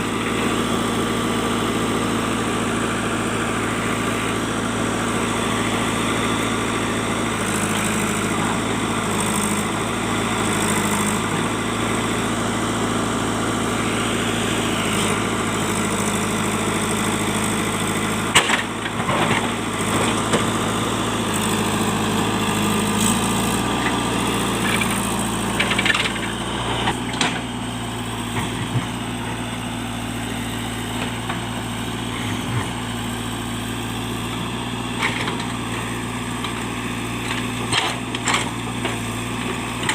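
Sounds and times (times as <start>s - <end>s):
diesel engine running: 0.0s - 39.9s
sharp cracks and knocks: 18.3s - 18.7s.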